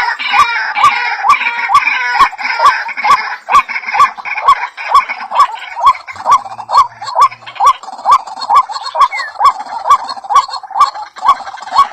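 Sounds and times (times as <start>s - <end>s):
bird calling with clicks: 8.8s - 9.5s.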